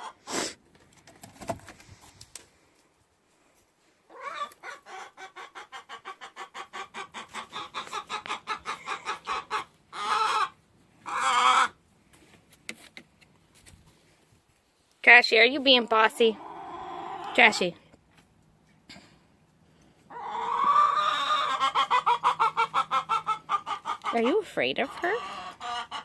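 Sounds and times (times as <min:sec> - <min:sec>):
hen clucking and squawking: 0:00.0 - 0:00.3, 0:04.1 - 0:11.8, 0:16.2 - 0:17.7, 0:20.0 - 0:26.0.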